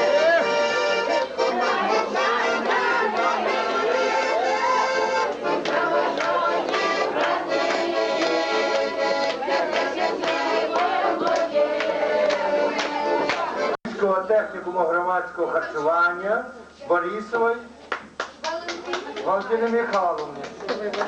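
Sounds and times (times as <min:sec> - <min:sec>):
accordion music: 0:00.0 - 0:13.8.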